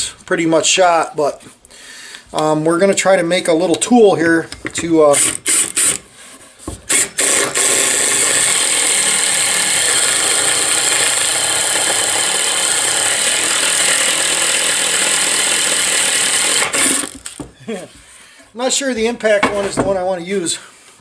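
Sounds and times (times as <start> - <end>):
impact driver with hole saw cutting: 5.2 - 6.1, 6.9 - 17.4.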